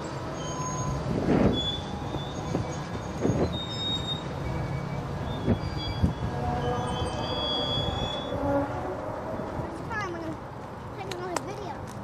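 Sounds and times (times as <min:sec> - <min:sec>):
freight train rumble: 0:00.0 - 0:11.8
faint high-pitched squealing: 0:00.4 - 0:09.7.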